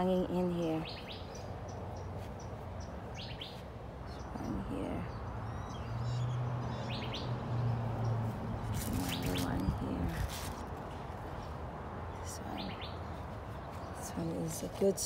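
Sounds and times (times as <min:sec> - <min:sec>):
outdoor background noise: 0:00.0 - 0:15.0
small birds chirping: 0:00.0 - 0:15.0.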